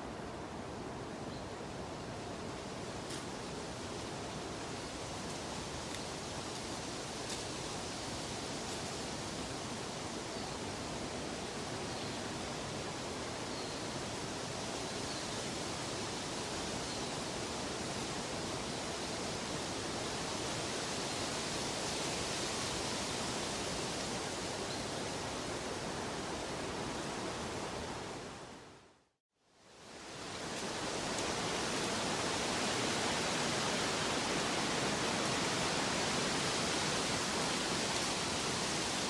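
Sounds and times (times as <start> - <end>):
rushing water: 29.8 - 39.0.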